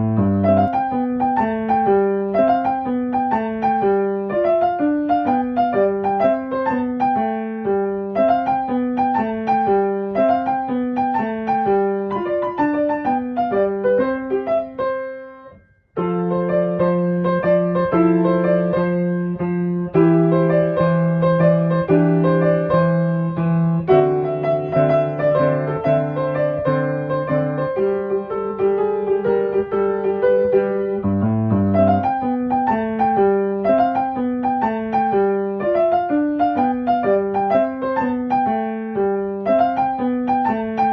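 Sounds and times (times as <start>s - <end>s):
piano melody: 0.0s - 40.9s
repeated piano chords: 0.0s - 40.9s.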